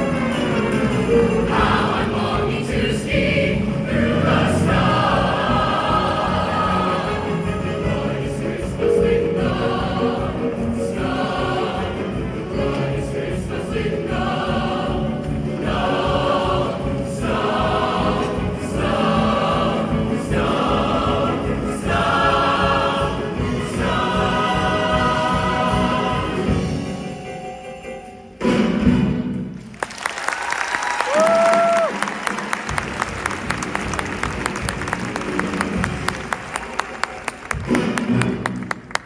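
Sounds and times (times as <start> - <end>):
choir singing: 0.0 - 28.2.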